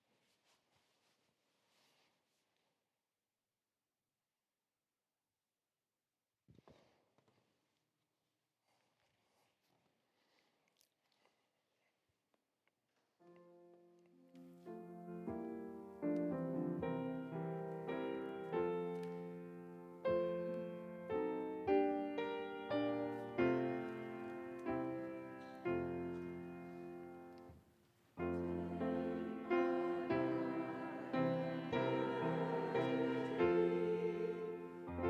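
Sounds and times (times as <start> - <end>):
slow solo piano chords: 14.4 - 27.5, 28.2 - 35.0.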